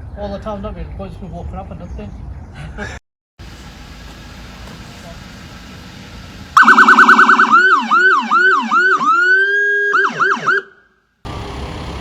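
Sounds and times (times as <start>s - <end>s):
police siren wailing and yelping: 6.6s - 10.8s.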